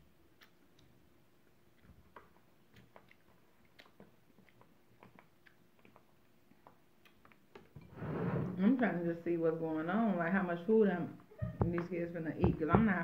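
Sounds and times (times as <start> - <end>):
quiet chewing: 0.0 - 7.8.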